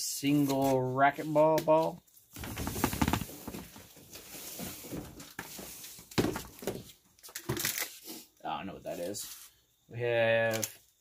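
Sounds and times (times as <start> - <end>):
packaging rustling and clicking: 2.4 - 3.8.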